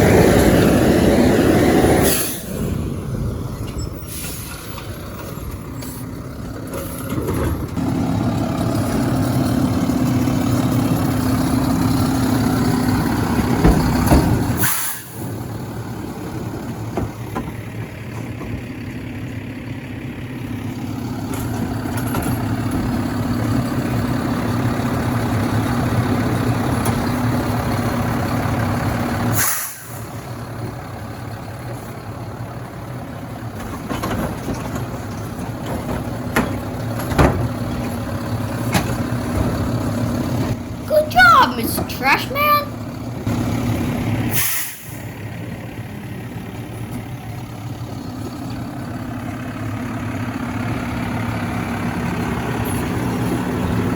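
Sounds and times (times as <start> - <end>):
garbage truck engine running: 0.0 - 53.9.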